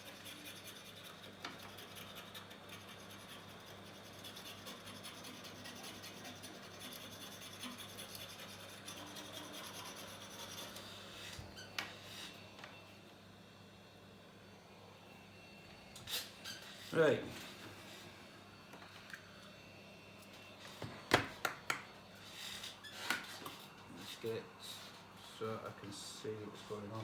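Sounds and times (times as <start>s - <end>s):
blade scraping metal: 0.0s - 10.8s.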